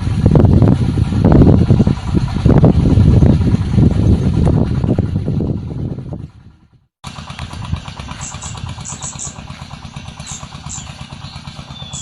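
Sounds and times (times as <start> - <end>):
loud low rumble: 0.0 - 12.0
small engine idling: 0.0 - 12.0
high bird chirps: 8.1 - 12.0.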